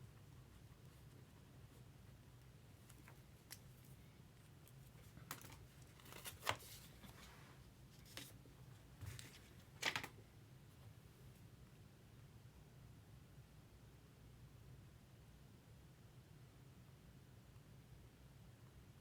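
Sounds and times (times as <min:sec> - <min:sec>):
packaging crinkling and rustling: 0:05.2 - 0:07.2.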